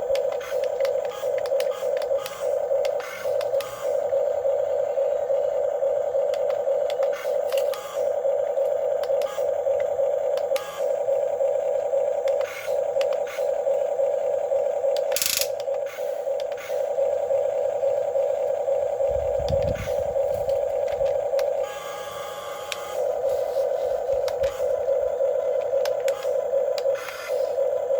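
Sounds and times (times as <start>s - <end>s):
electric motors whining: 0.0s - 27.9s
short scraping clicks: 15.0s - 16.8s.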